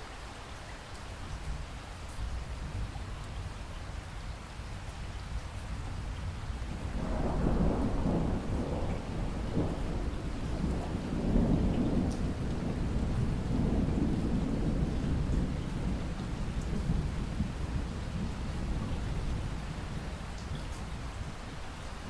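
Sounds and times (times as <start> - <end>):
steady rain: 0.0 - 22.0
thunder rumbling: 6.2 - 21.2.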